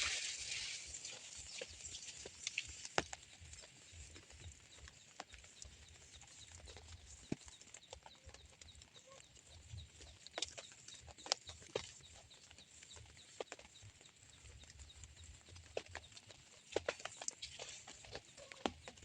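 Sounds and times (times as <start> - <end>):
light drizzle hiss: 0.0 - 4.1
raindrops tapping: 0.0 - 19.0.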